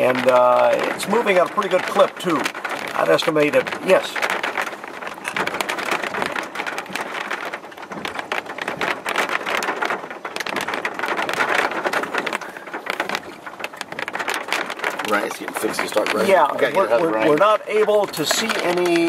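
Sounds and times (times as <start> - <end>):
rain on a vehicle: 0.0 - 19.0.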